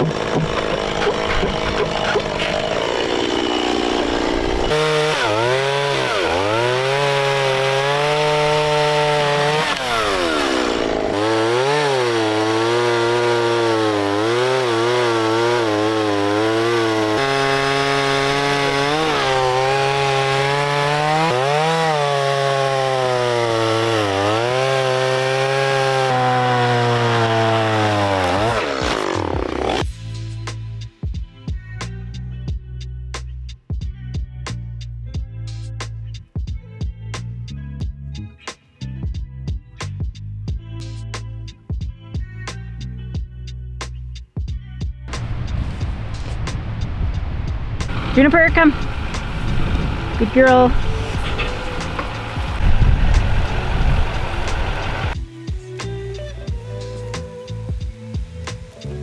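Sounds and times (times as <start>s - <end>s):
chainsaw cutting wood: 0.0s - 29.9s, 45.1s - 45.4s, 47.8s - 55.2s.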